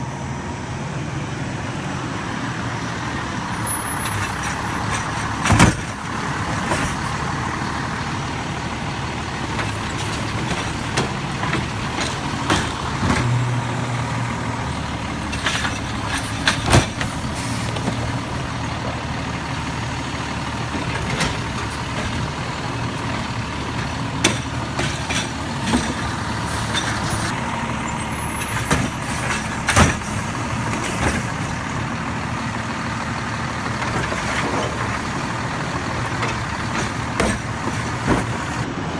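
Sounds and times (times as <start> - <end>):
garbage truck engine running: 0.0 - 38.9
sharp clanks and knocks: 3.9 - 7.2, 9.4 - 13.4, 15.2 - 18.2, 20.7 - 22.4, 23.0 - 27.3, 28.4 - 31.7, 33.7 - 38.7.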